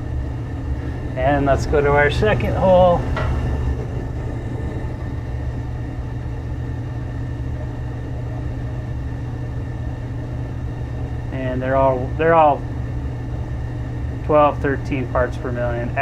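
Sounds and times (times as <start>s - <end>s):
gas furnace humming and hissing: 0.0s - 16.0s.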